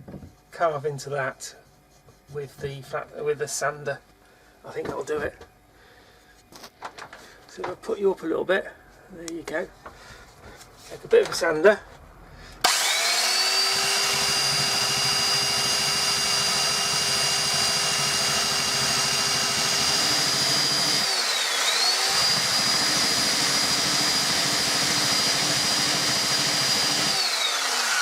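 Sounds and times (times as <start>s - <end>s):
electric sander whining: 12.6s - 28.0s.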